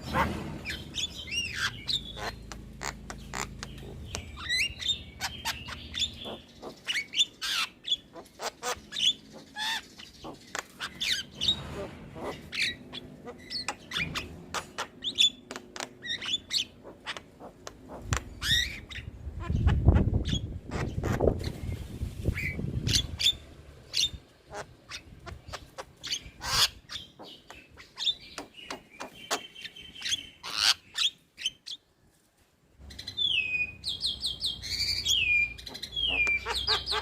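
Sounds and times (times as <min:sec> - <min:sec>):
bird calling with clicks and whistles: 0:32.9 - 0:37.0.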